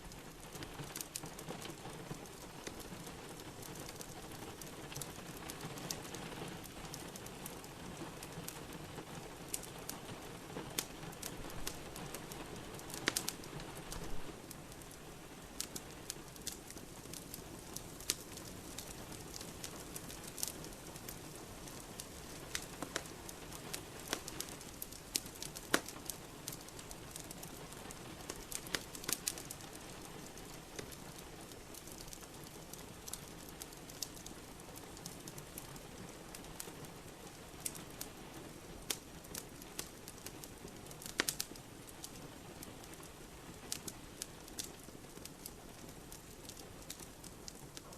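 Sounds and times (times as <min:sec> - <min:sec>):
steady rain: 0:00.0 - 0:47.9
wood fire crackling: 0:00.0 - 0:47.9.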